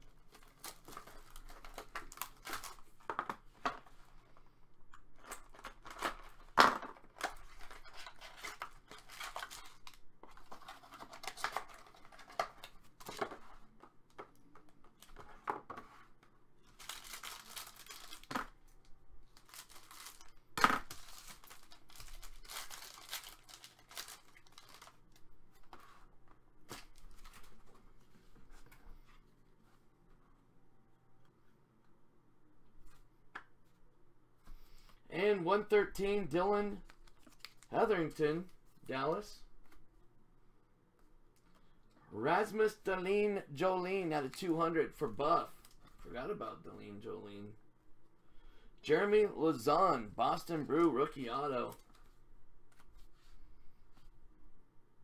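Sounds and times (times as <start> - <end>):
packaging tearing and crinkling: 7.2 - 13.2, 16.7 - 18.4, 19.4 - 25.0.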